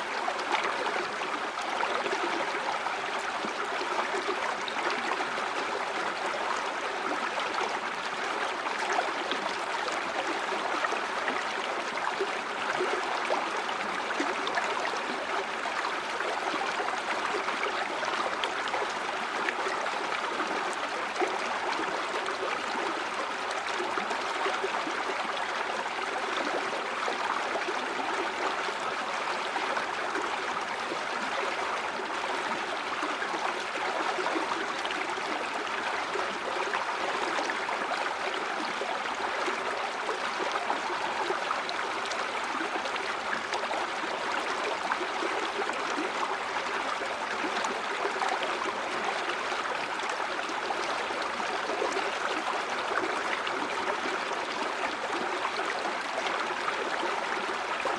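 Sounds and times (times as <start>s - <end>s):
river water babbling over stones: 0.0s - 57.9s.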